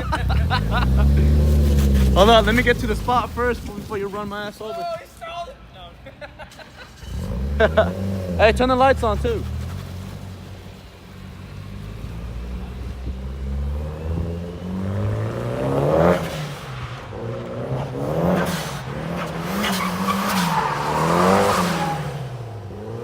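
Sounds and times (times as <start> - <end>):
car engine revving: 0.0 - 4.4, 6.7 - 23.0
tyres squealing: 0.0 - 5.8, 19.2 - 22.4.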